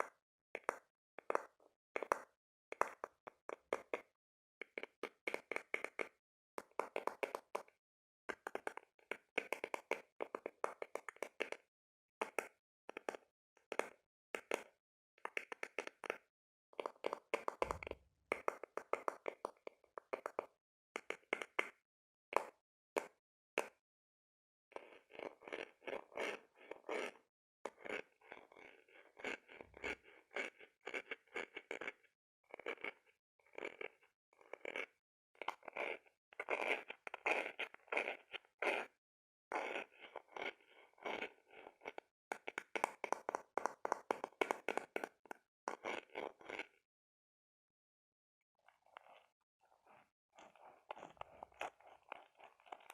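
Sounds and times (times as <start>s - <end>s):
sharp knocks on object: 17.6s - 18.0s
scratching on hard object: 24.8s - 45.1s, 45.7s - 46.8s, 48.6s - 52.9s.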